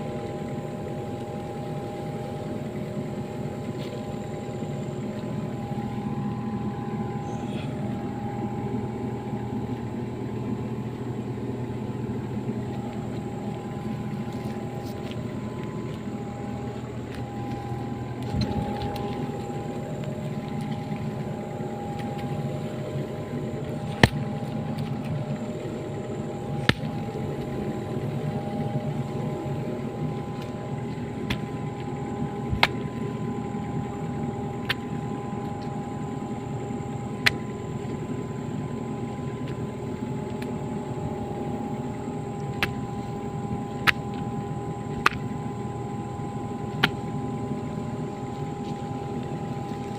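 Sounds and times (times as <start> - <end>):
excavator engine humming: 0.0 - 49.9.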